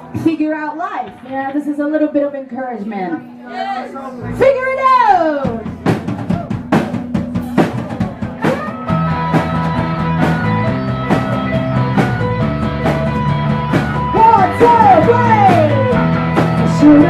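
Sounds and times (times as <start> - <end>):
live rock band playing: 4.2 - 17.0
drum kit hits: 4.8 - 17.0
distorted electric guitar: 5.5 - 17.0.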